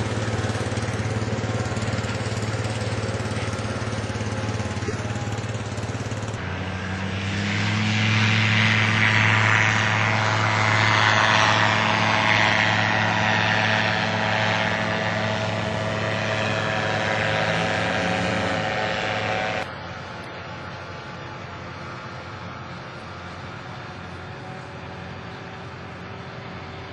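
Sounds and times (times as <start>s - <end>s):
light aircraft propeller engine: 0.0s - 26.9s.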